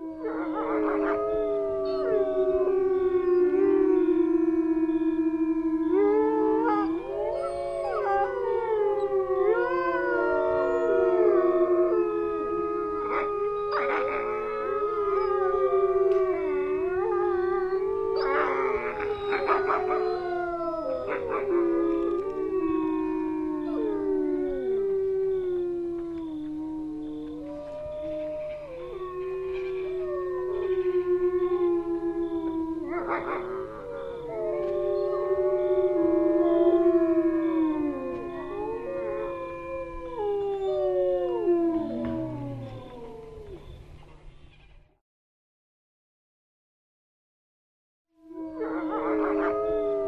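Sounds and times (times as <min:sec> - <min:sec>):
wolves howling: 0:00.0 - 0:44.3, 0:48.2 - 0:50.0
wolves yipping and barking: 0:13.0 - 0:24.5, 0:32.5 - 0:36.1.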